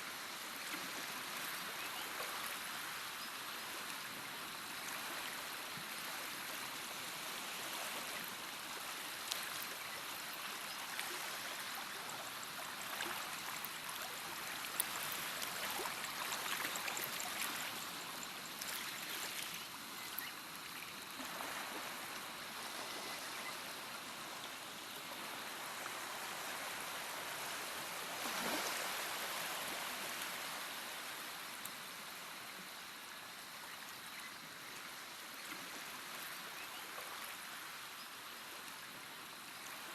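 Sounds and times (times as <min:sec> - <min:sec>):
stream of water trickling: 0:00.0 - 0:39.9.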